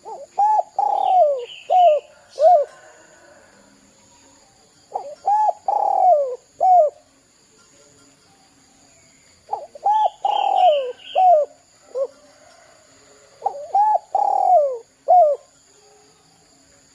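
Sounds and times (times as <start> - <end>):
dove cooing: 0.0 - 3.5, 4.9 - 7.1, 9.5 - 16.0
faint insect hum: 0.0 - 16.9.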